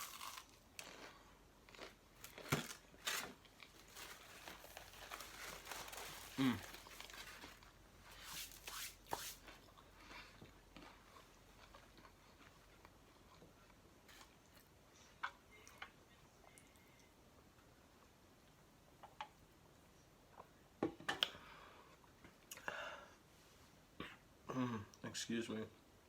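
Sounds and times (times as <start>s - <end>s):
crunchy bites: 0.0s - 3.4s
paper wrapper crinkling and tearing: 2.2s - 7.7s.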